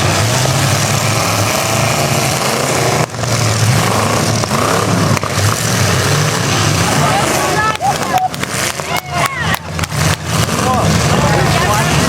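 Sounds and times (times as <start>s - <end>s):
car engines revving loudly: 0.0s - 12.0s.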